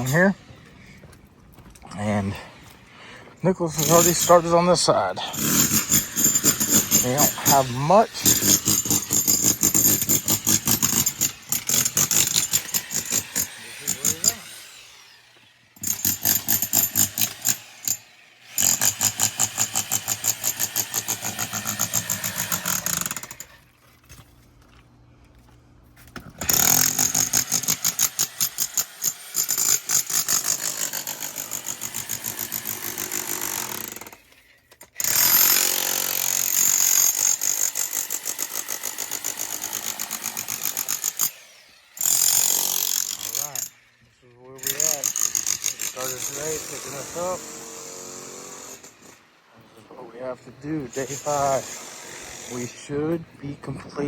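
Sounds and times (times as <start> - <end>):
demolition hammer chipping wall: 3.7 - 14.8, 15.8 - 23.4, 26.3 - 34.2.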